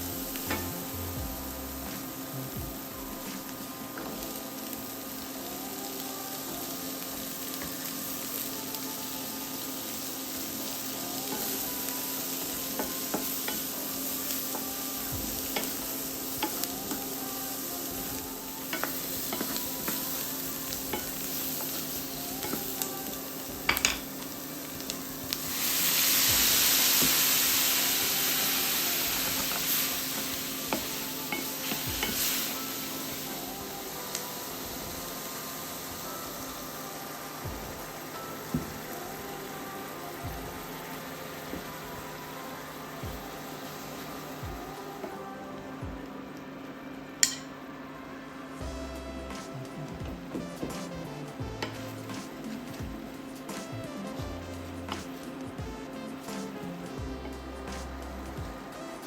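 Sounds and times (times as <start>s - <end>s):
food frying in a pan: 0.0s - 59.0s
utensil stirring and tapping pan: 18.6s - 22.9s, 23.6s - 28.2s, 47.2s - 47.5s, 50.3s - 53.2s.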